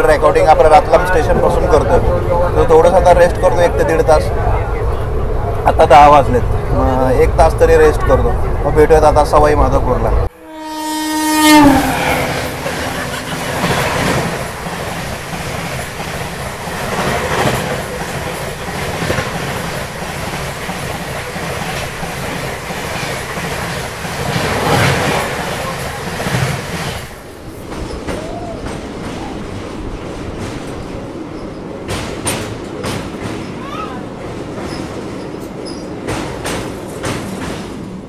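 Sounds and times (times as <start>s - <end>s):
passing train air rush: 10.2s - 38.0s
train wheels clattering: 12.1s - 38.0s.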